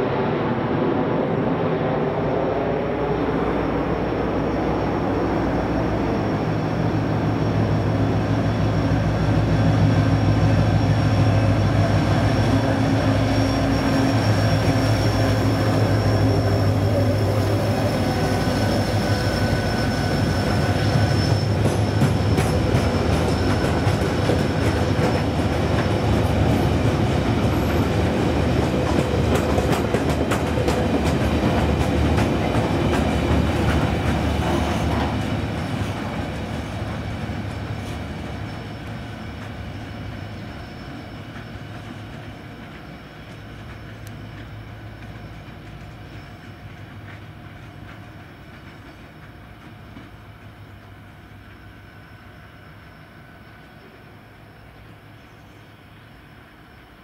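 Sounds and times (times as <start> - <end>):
diesel locomotive passing: 0.0 - 57.0
high wheel squeal: 3.3 - 28.2, 34.3 - 44.6
wagons clacking over rail joints: 21.1 - 50.5.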